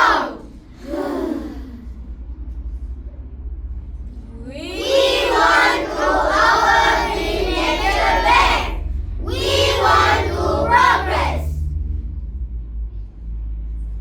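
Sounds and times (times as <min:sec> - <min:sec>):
children speaking in unison: 0:00.0 - 0:01.8, 0:04.6 - 0:11.6
low steady hum: 0:00.0 - 0:14.0.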